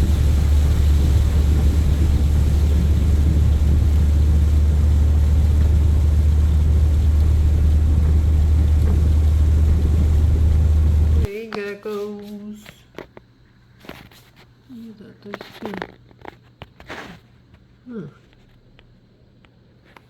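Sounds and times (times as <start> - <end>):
vehicle road rumble: 0.0 - 11.3.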